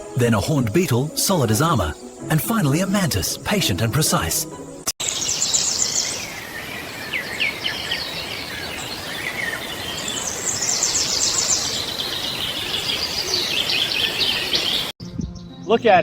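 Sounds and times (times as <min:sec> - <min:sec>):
small birds chirping and trilling: 0:00.0 - 0:16.0
outdoor hiss: 0:05.0 - 0:14.9.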